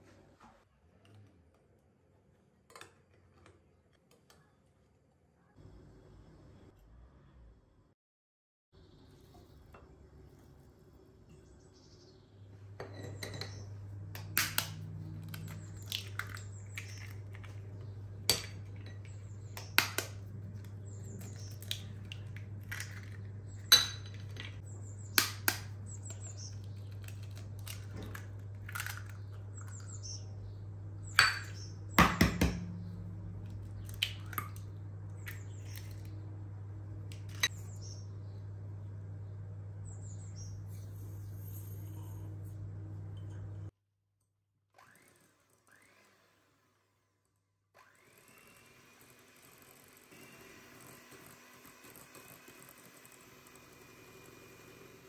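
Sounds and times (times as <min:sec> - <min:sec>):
steady low hum: 0:09.2 - 0:43.7
utensils and dishes clinking: 0:12.8 - 0:13.8.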